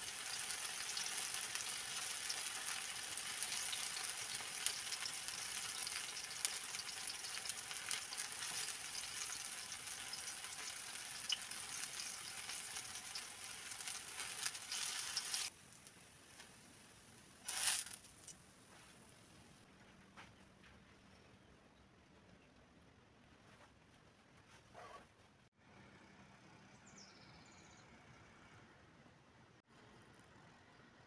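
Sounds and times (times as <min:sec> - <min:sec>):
food sizzling in hot oil: 0:00.0 - 0:16.4, 0:17.4 - 0:18.3
oil crackles and pops: 0:00.0 - 0:18.4.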